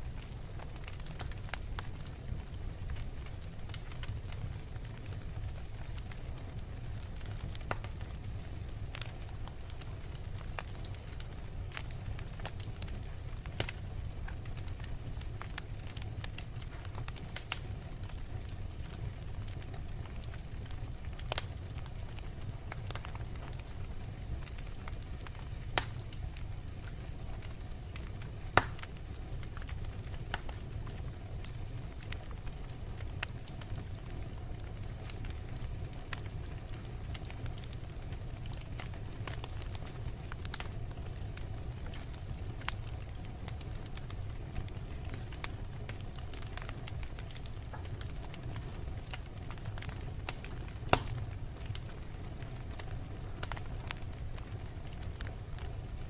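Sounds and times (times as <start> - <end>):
wood fire burning: 0.0 - 56.0.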